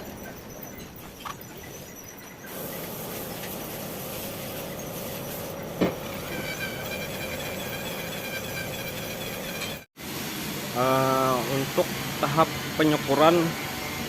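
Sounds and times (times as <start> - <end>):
valve grinding against seat: 4.9 - 9.9.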